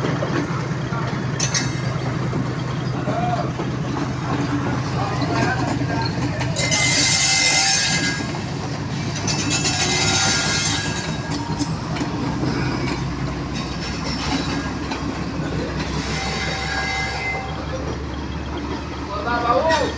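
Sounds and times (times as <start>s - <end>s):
freight train rolling on rails: 0.0s - 19.9s
wheels clicking over rail joints: 0.0s - 19.9s
wheel squeals: 4.2s - 19.9s.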